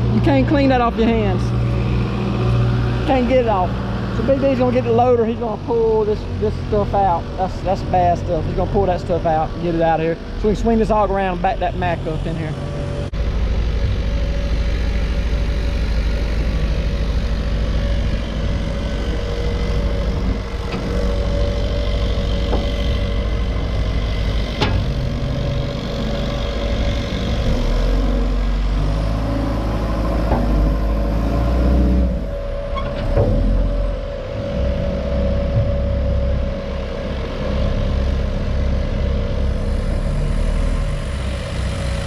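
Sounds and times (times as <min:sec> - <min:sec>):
constant hum: 0:00.0 - 0:42.0
heavy diesel engine running: 0:00.0 - 0:42.0
sharp knocks: 0:30.2 - 0:30.9.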